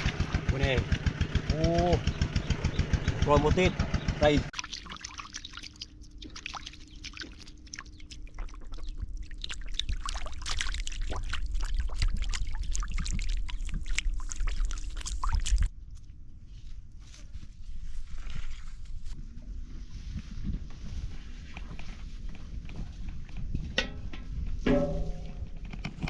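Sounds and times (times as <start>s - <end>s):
water splashing and sloshing: 0.0s - 0.7s, 4.5s - 15.8s, 17.8s - 19.2s.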